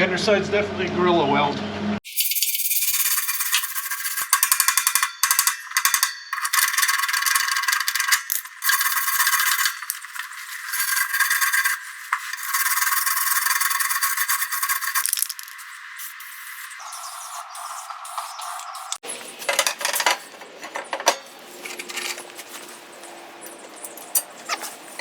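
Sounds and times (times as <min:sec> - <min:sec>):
welding arc crackling: 0:02.1 - 0:19.5.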